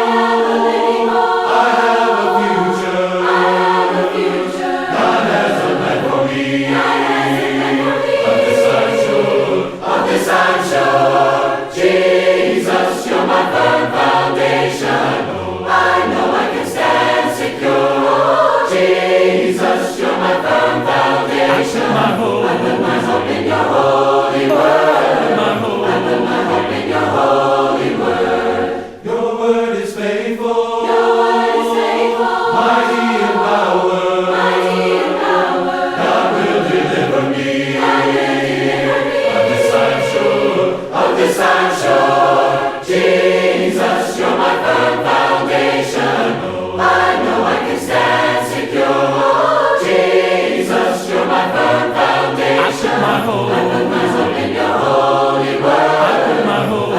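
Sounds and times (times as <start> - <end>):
choir singing in harmony: 0.0 - 56.9.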